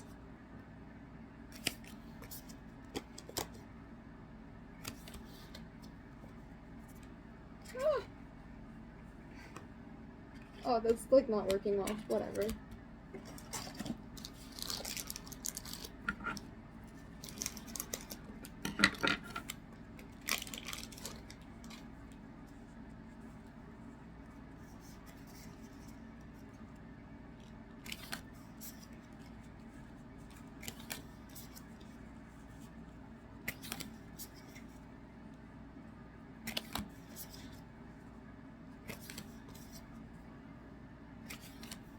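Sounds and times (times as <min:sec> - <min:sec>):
card wrappers crinkling: 0:13.2 - 0:16.1, 0:16.9 - 0:18.6, 0:19.4 - 0:22.2.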